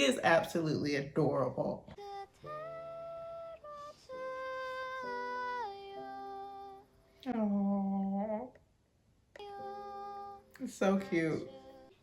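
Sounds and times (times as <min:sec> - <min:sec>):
woman singing slow melody: 0:01.8 - 0:08.6, 0:09.3 - 0:12.0.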